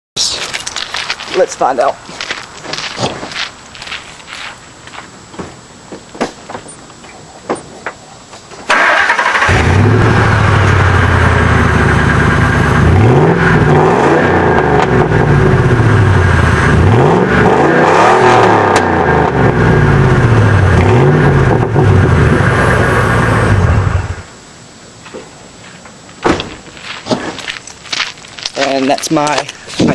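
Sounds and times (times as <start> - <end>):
engine starting and revving: 8.7 - 24.2.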